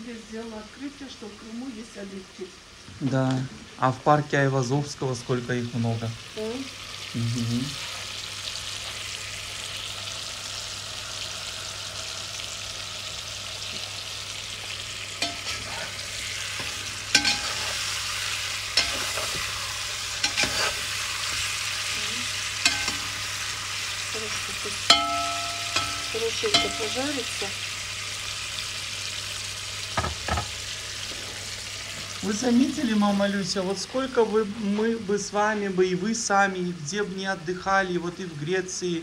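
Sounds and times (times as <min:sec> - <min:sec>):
meat sizzling in oil: 0:00.0 - 0:39.0
metal skimmer scraping pot: 0:15.2 - 0:17.9, 0:20.2 - 0:20.9.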